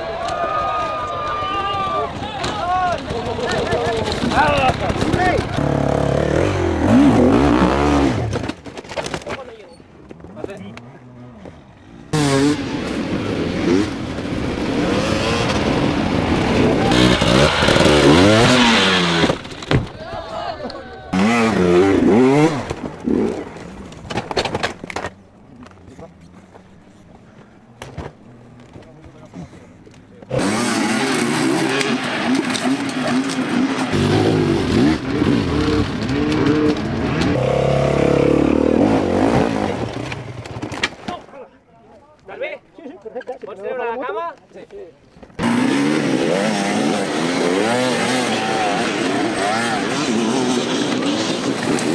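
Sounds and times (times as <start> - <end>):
dirt bike engine revving: 1.5 - 8.7, 10.2 - 20.0, 21.1 - 26.7, 30.2 - 40.8, 45.4 - 51.9.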